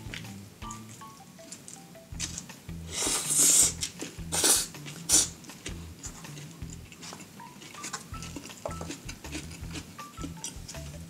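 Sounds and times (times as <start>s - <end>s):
soft background music: 0.0s - 11.0s
biting and chewing burger: 2.2s - 11.0s.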